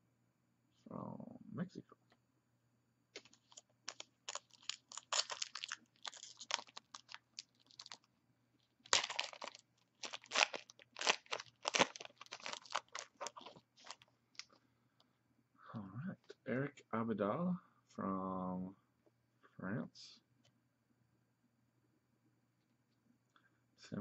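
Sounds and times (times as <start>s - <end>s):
foil wrapper tearing and crinkling: 3.2s - 8.1s, 8.8s - 14.5s.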